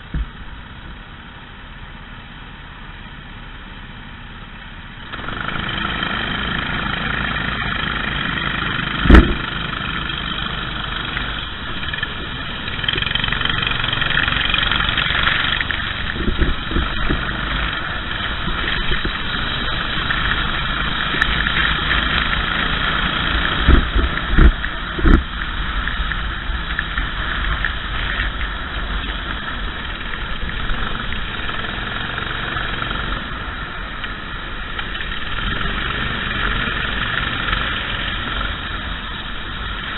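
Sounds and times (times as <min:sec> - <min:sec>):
kart engine revving: 0:05.1 - 0:25.8, 0:26.5 - 0:39.9
sharp thumps: 0:09.0 - 0:09.5.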